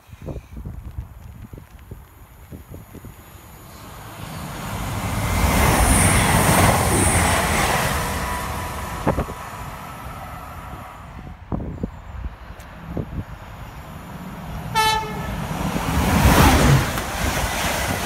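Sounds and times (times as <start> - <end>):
train passing at speed: 2.9 - 18.0.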